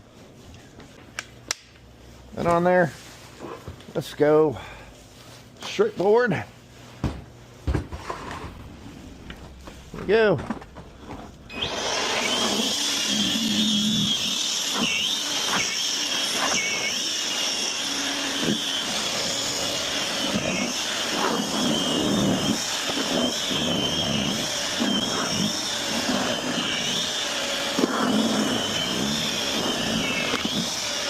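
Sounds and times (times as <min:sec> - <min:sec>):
snow blower whining: 0:09.1 - 0:31.0.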